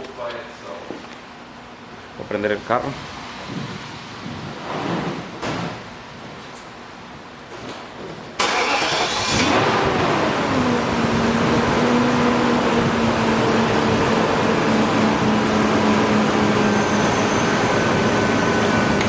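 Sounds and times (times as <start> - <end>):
car engine starting and idling: 8.4 - 19.0.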